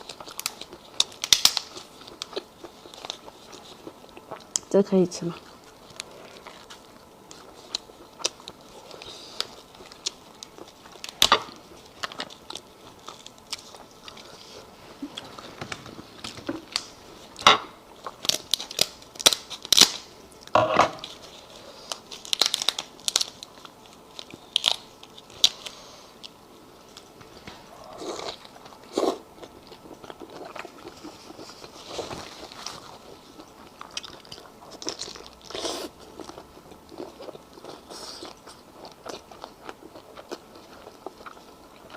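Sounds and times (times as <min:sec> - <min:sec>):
person chewing: 0:00.0 - 0:04.7, 0:05.4 - 0:27.1, 0:27.7 - 0:41.9
shellfish shells crunching: 0:21.9 - 0:25.7.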